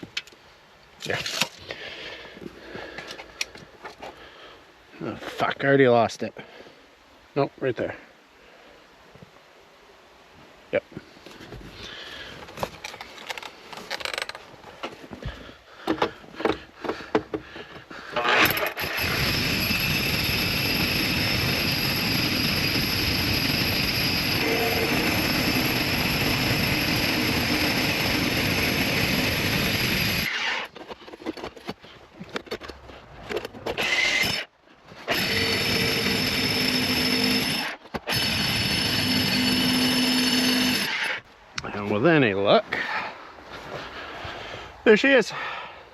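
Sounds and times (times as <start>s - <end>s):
power drill boring concrete: 18.2s - 30.7s, 33.8s - 41.2s.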